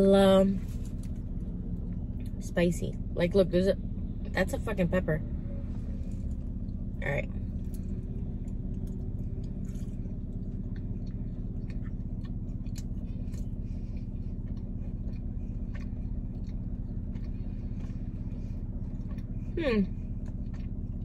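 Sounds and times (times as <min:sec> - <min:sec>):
car interior hum: 0:00.0 - 0:21.0
person chewing crunchy food: 0:07.4 - 0:21.0.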